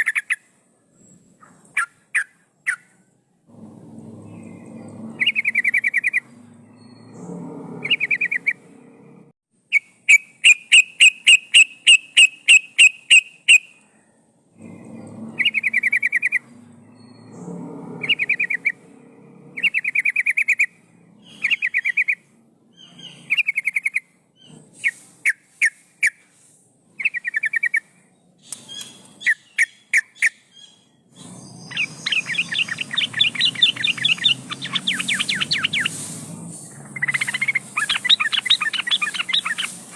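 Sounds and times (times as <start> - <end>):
bird singing bubbling phrases: 4.0 - 8.7, 14.6 - 17.4, 18.0 - 18.8, 28.8 - 36.0, 36.7 - 39.9
loud evenly spaced bird notes: 28.6 - 39.9.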